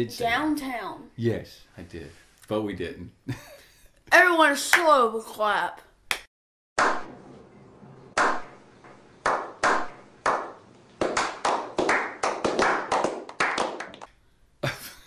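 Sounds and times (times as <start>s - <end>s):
group hand clapping: 6.1s - 7.1s, 8.2s - 8.5s, 9.2s - 14.1s.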